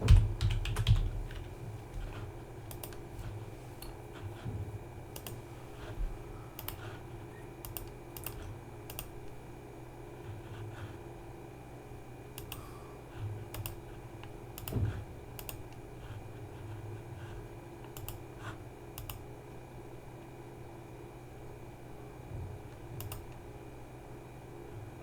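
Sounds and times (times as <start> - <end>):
computer keyboard keystrokes: 0.0 - 1.6, 2.6 - 3.1, 5.1 - 5.4, 6.6 - 6.9, 7.6 - 9.4, 12.4 - 12.7, 13.5 - 15.8, 17.8 - 18.3, 19.0 - 19.3, 23.0 - 23.4
steady low hum: 0.0 - 25.0.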